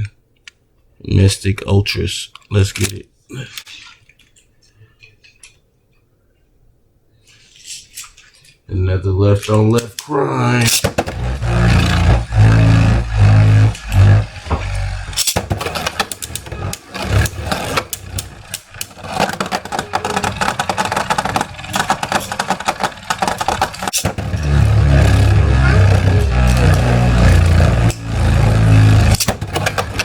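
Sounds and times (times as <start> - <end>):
spinning tops whirring: 10.7 - 30.0.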